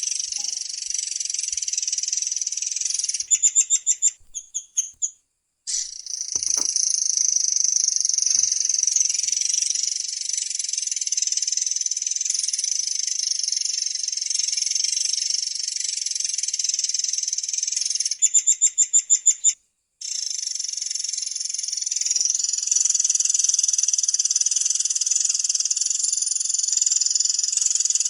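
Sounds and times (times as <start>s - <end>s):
bird chirps: 0.3s - 5.1s.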